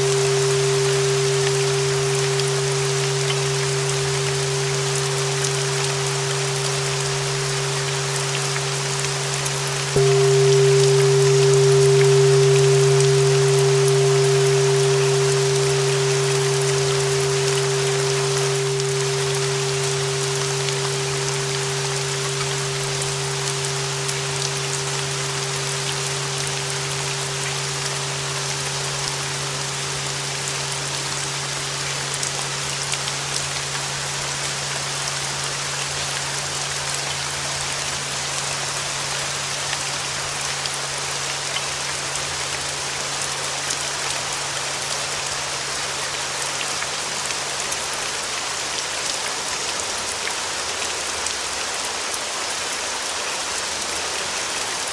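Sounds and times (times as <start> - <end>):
ringing bells: 0.0 - 33.2
steady rain: 0.0 - 54.9.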